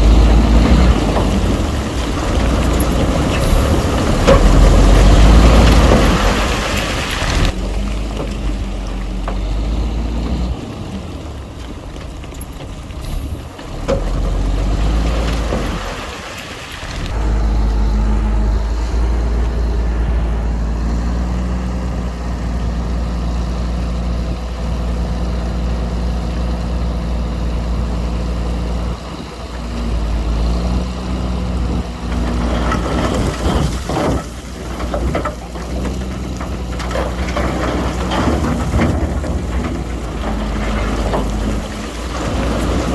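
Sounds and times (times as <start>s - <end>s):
heavy diesel machinery running: 0.0s - 42.9s
rattling crackling noise: 31.9s - 42.9s.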